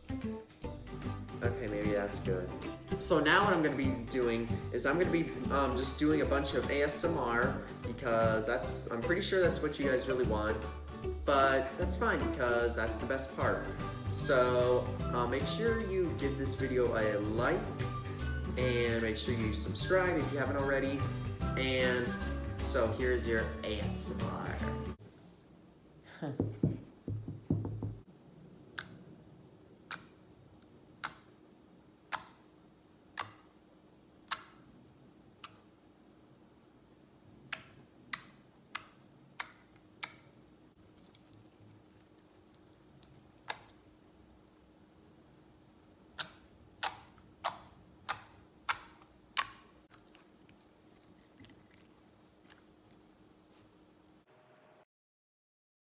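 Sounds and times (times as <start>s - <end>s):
sticky slime sounds: 46.1s - 53.7s.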